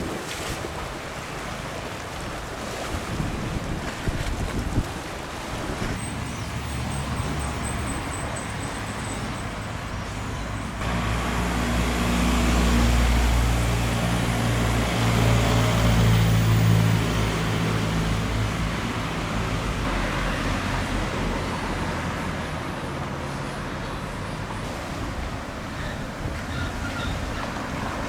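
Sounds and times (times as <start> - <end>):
street traffic noise: 5.1 - 28.0
vehicle engine running: 10.8 - 20.1.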